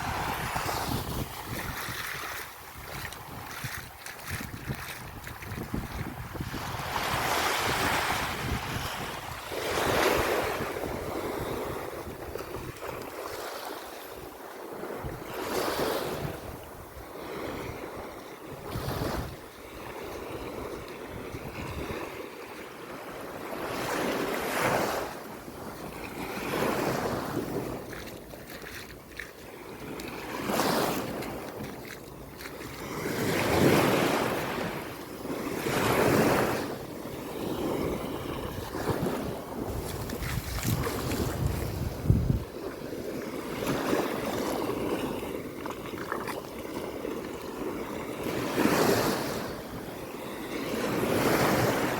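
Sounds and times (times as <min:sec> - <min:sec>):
wind gusting over microphone: 0:00.0 - 0:13.4, 0:14.8 - 0:22.3, 0:32.7 - 0:47.0
sea waves breaking on shore: 0:00.0 - 0:51.9.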